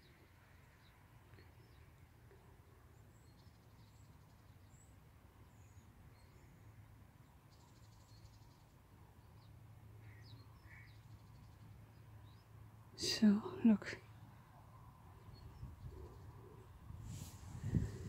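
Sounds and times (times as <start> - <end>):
faint bird chirps: 0.0 - 18.0.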